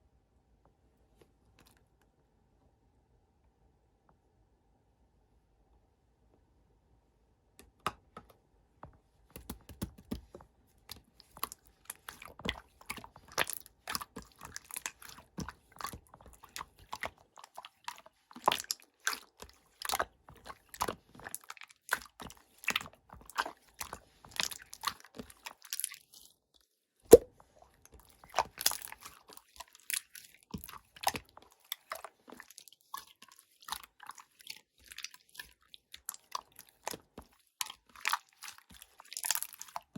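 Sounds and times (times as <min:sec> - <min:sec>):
slime squishing by hand: 0:09.2 - 0:26.3, 0:27.1 - 0:39.9.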